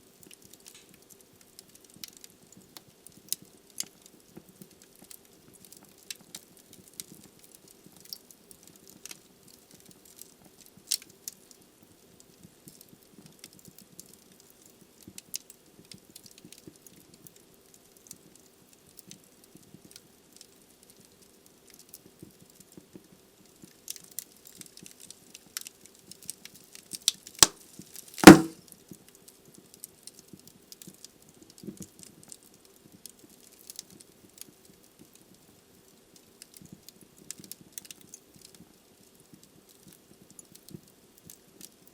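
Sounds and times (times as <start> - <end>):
wood fire crackling: 0.1 - 41.9
loud sharp pop: 28.2 - 28.6.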